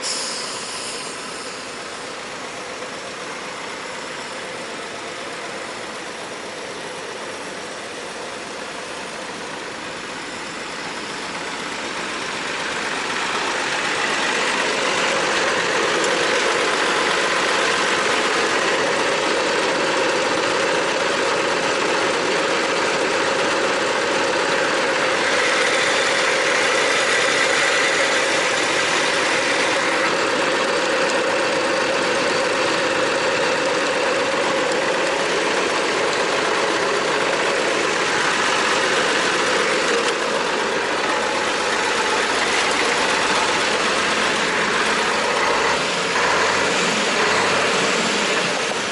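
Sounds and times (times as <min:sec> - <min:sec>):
diesel truck engine running: 0:00.0 - 0:48.9.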